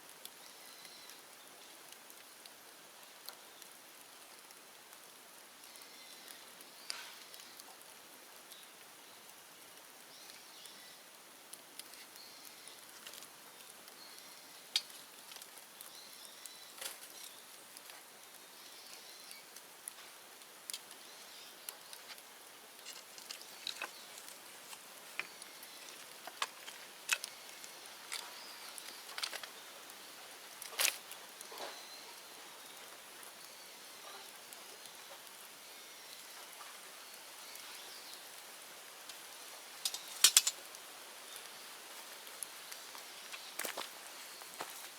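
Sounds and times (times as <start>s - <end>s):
bonfire crackling: 0.0s - 44.9s
sharp pops of burning bamboo: 6.7s - 7.8s, 11.5s - 18.2s, 18.9s - 31.8s, 39.0s - 41.6s, 42.2s - 44.9s.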